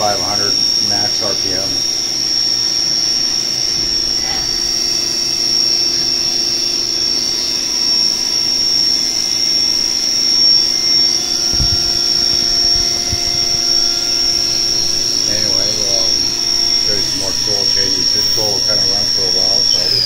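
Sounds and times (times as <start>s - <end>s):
high-pitched spindle whine: 0.0s - 20.0s
mechanical hum: 0.0s - 20.0s
low thump: 11.5s - 15.3s.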